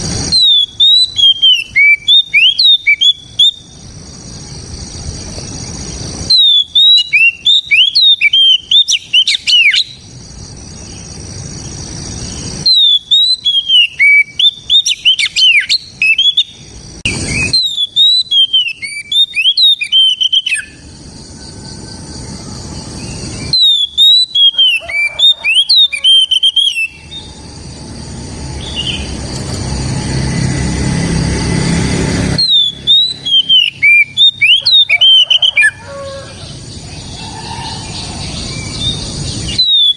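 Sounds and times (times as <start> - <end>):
bird singing whistled notes: 0.0 - 10.1, 10.8 - 29.4, 32.3 - 36.1, 36.7 - 39.9.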